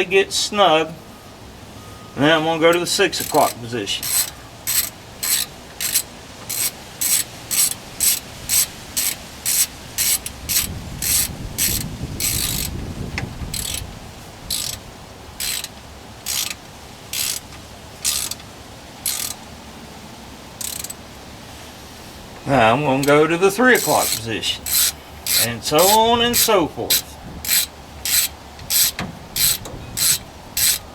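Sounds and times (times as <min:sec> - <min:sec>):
ratchet wrench clicking: 0:02.7 - 0:12.7, 0:13.5 - 0:13.9, 0:14.5 - 0:14.8, 0:15.4 - 0:19.4, 0:20.6 - 0:21.0, 0:23.0 - 0:30.9.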